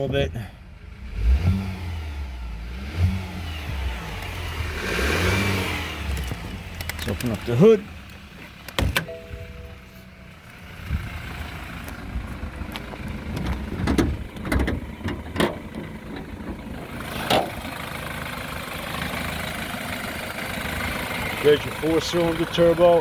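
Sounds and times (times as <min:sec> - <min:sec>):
car engine idling: 0:00.0 - 0:23.0
hood latch clicks and knocks: 0:08.6 - 0:09.2, 0:13.3 - 0:17.6.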